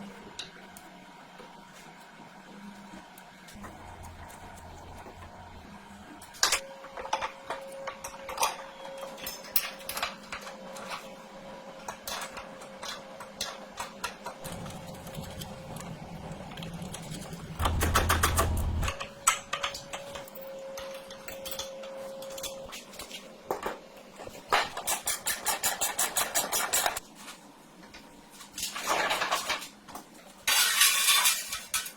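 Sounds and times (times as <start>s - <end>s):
faint steady whine: 3.5s - 9.0s.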